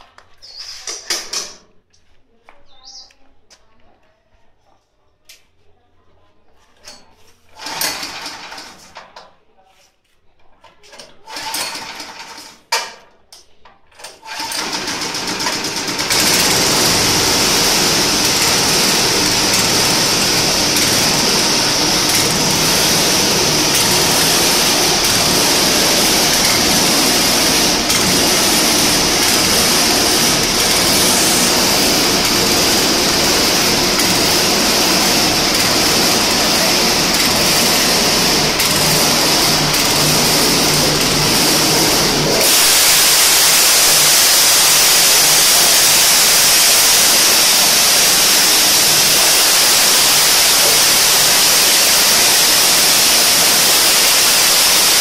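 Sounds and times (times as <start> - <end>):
knocks and clatters: 0.0 - 1.8
machine running with high whine: 14.6 - 55.0.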